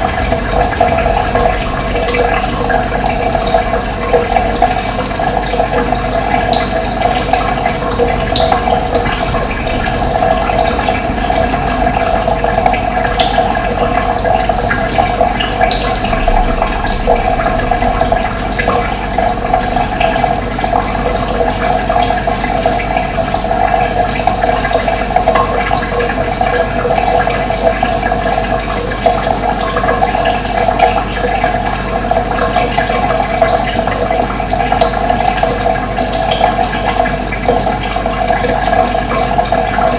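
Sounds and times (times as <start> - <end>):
running water rushing and gurgling: 0.0 - 39.9.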